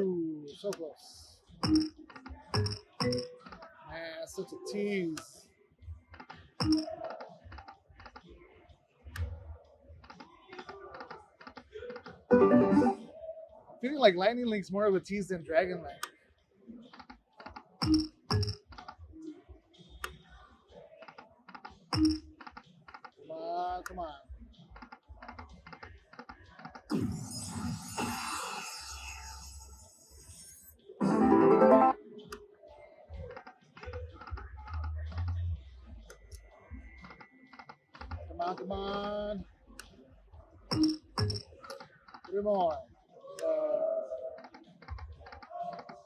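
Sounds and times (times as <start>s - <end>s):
slot machine clicks: 1.6s - 3.4s, 6.6s - 7.0s, 12.3s - 13.1s, 17.8s - 18.6s, 21.9s - 22.3s, 30.3s - 32.0s, 40.7s - 41.5s
slot machine tone: 12.3s - 13.1s, 31.0s - 32.0s.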